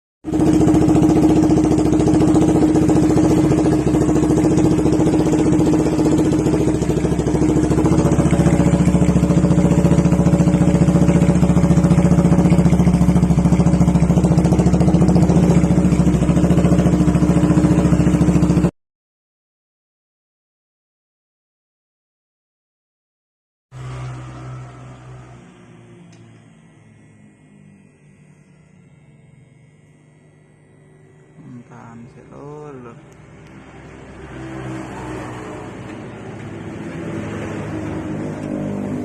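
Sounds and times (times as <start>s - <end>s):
motorcycle engine idling: 0.3s - 18.7s.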